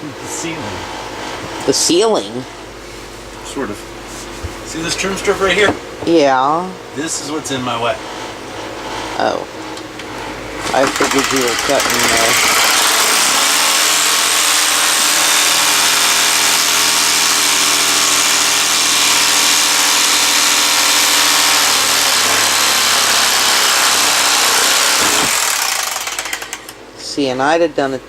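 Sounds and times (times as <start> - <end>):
power saw cutting: 10.3 - 26.8.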